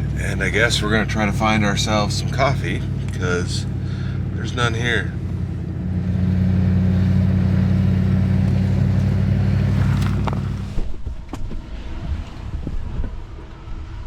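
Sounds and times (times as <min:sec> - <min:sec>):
truck engine running: 0:00.0 - 0:11.0
road noise: 0:00.0 - 0:14.0.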